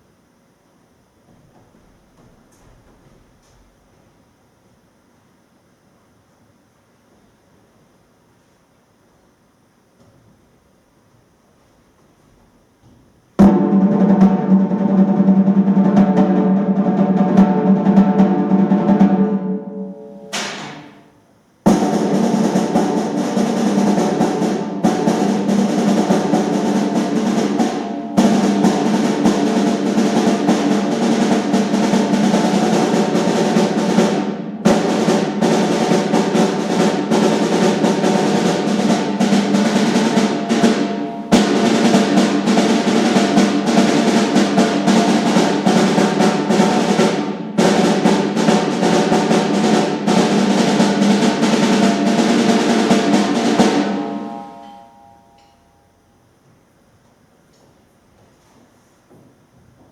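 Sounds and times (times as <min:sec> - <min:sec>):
drum rolls: 0:13.4 - 0:55.6.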